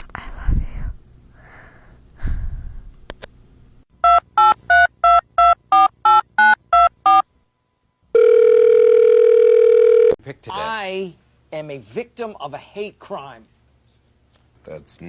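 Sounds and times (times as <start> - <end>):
steady phone tone: 4.0 - 7.2, 8.1 - 10.2.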